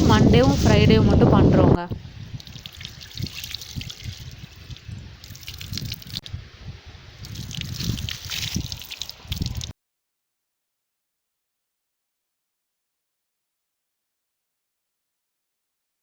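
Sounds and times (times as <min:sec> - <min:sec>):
water pouring and splashing on stone: 0:02.1 - 0:06.3, 0:07.2 - 0:09.7.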